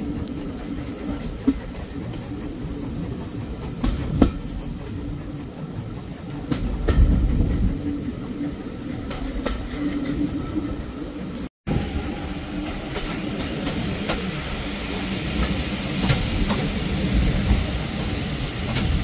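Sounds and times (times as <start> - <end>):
wheels clicking over rail joints: 0.0 - 11.5
railway carriage wheels rumbling: 0.0 - 19.0.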